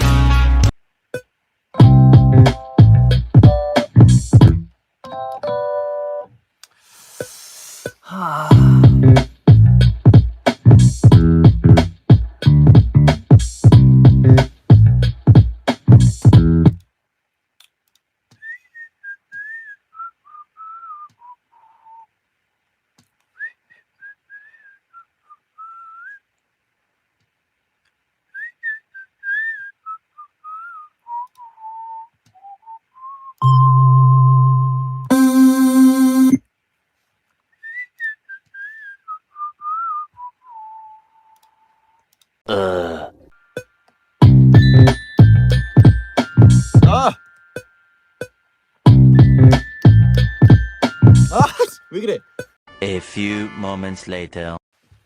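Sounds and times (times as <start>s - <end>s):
music beat: 0.0s - 4.7s, 7.9s - 16.8s, 43.6s - 52.6s
person whistling a melody: 18.4s - 22.0s, 23.4s - 26.2s, 28.4s - 33.5s, 37.6s - 41.4s, 49.2s - 52.6s.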